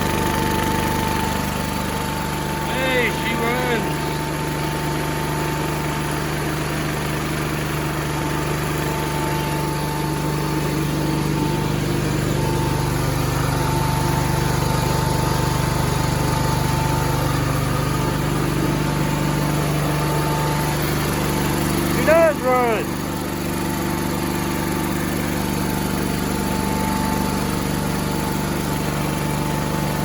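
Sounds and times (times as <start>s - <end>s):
small tractor engine running: 0.0s - 30.0s.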